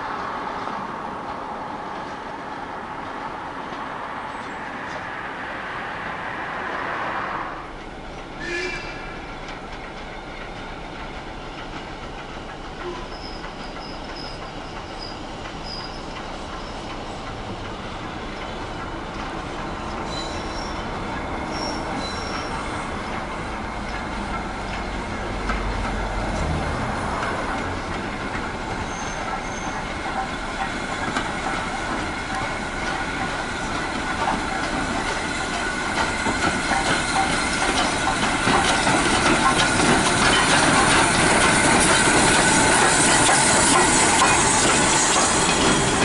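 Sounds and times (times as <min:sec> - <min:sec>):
train rumble: 0:00.0 - 0:46.0
train wheels squealing: 0:04.2 - 0:10.7, 0:12.7 - 0:17.9, 0:18.6 - 0:24.2, 0:28.6 - 0:46.0.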